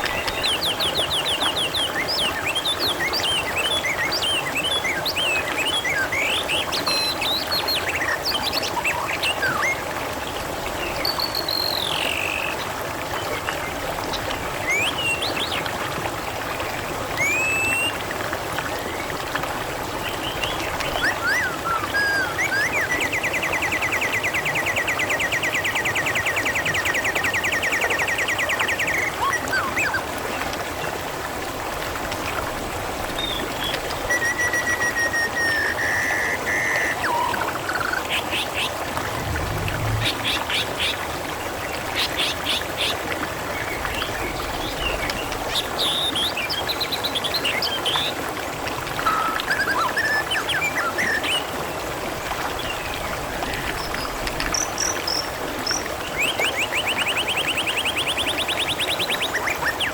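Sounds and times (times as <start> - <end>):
water trickling: 25.0 - 59.7.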